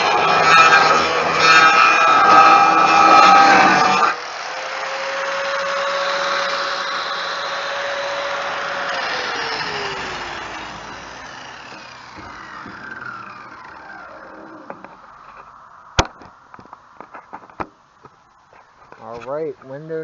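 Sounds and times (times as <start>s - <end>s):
electric grinder whining: 0.0s - 15.5s.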